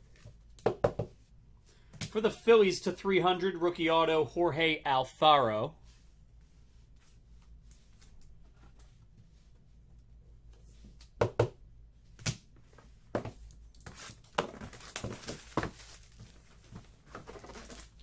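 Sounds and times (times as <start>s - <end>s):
packaging crinkling and tearing: 14.0s - 16.4s, 17.3s - 18.0s.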